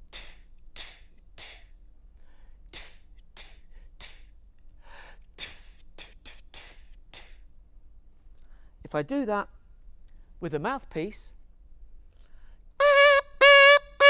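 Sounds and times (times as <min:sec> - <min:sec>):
breathy puffs through lips: 0:04.9 - 0:07.4.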